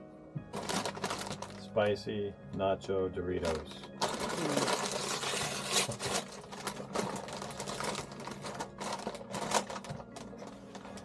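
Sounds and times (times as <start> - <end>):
chip bag crinkling: 0.6 - 1.7, 3.4 - 11.0.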